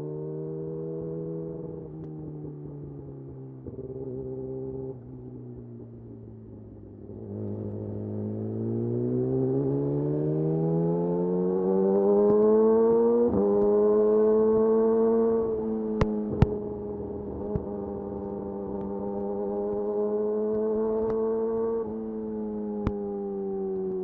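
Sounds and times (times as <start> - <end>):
motorcycle engine revving: 7.0 - 22.1.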